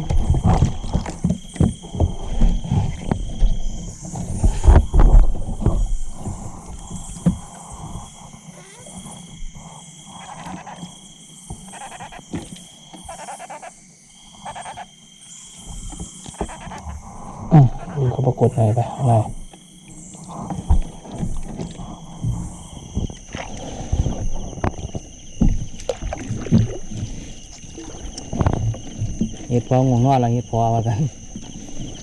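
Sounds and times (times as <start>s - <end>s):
high animal call: 7.9s - 9.3s, 13.0s - 13.8s, 14.4s - 14.9s, 16.3s - 19.2s
pulsed lower animal calls: 13.0s - 14.9s, 16.3s - 24.6s.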